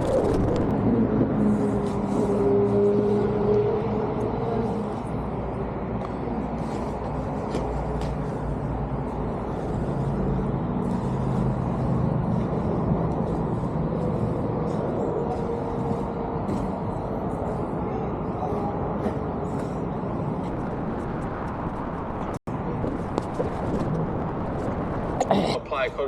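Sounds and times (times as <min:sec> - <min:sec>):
vehicle engine hum: 0:00.0 - 0:25.6.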